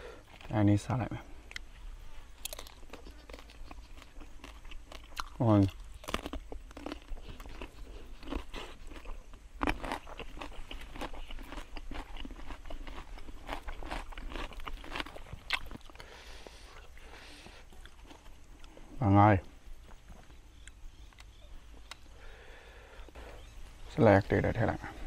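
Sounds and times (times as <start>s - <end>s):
crunching raw cucumber: 1.4s - 16.1s.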